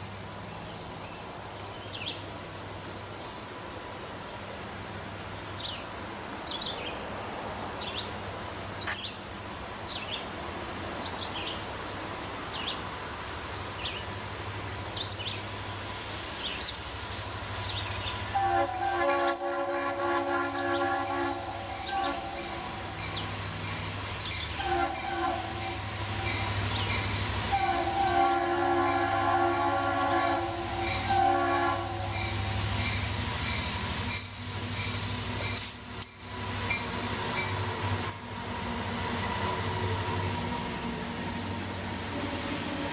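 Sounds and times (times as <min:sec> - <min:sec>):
diesel locomotives rumbling: 0:00.0 - 0:42.9
train air horn blast: 0:18.3 - 0:23.1, 0:24.5 - 0:26.7, 0:27.4 - 0:32.7.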